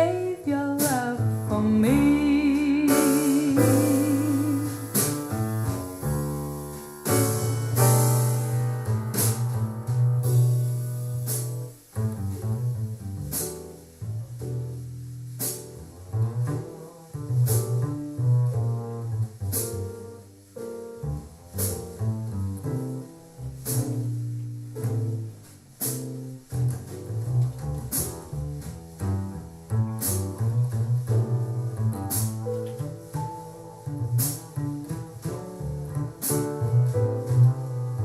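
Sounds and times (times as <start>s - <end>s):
slow jazz over loudspeaker: 0.0s - 5.8s
double bass line: 0.0s - 38.0s
sharp percussive stroke: 2.9s - 9.6s.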